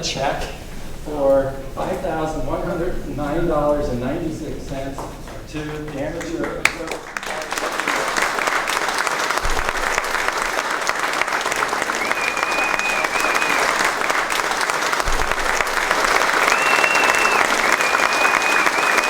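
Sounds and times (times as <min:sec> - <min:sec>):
audience applauding: 0:04.7 - 0:19.0.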